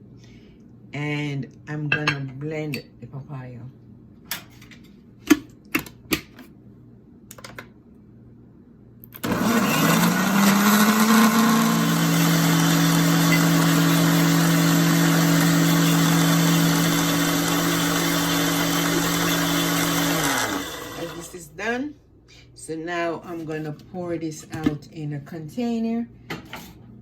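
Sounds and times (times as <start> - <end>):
blender running: 9.2 - 21.4.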